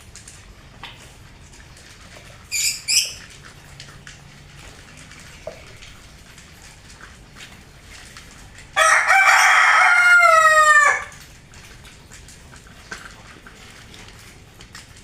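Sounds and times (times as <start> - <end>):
rooster crowing: 8.8 - 11.2.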